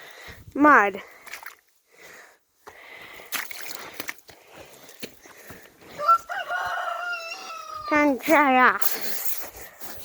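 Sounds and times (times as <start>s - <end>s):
boots squelching through mud: 1.1s - 1.9s, 2.6s - 6.8s.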